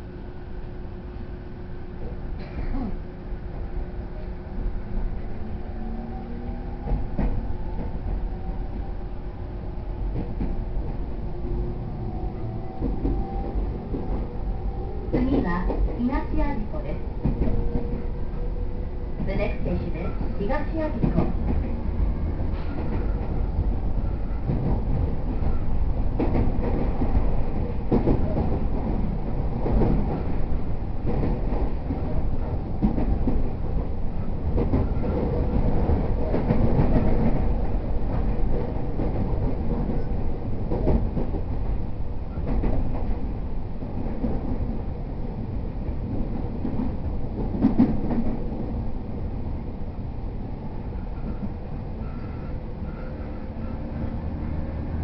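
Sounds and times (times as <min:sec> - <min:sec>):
low rumble of train wheels: 0:00.0 - 0:55.0
clacks over rail joints: 0:19.2 - 0:21.8, 0:24.4 - 0:30.4, 0:31.0 - 0:33.9, 0:34.5 - 0:43.2.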